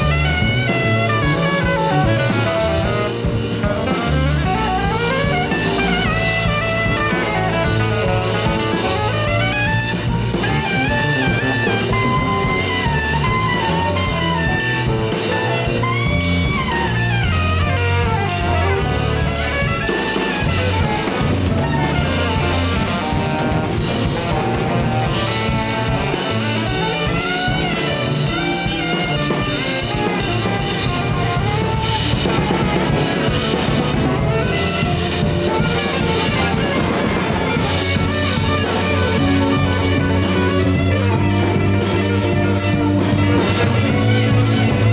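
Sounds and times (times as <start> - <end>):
jazz band playing: 0.0 - 44.9
saxophone melody: 0.0 - 44.9.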